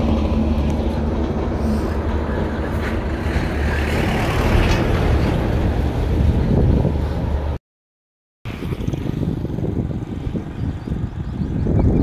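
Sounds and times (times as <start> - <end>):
vehicle driving rumble: 0.0 - 7.6.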